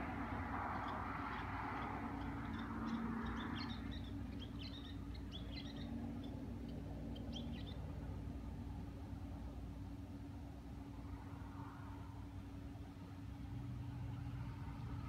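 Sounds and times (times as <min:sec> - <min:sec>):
small birds chirping: 0:00.0 - 0:08.6
steady low hum: 0:00.0 - 0:15.0.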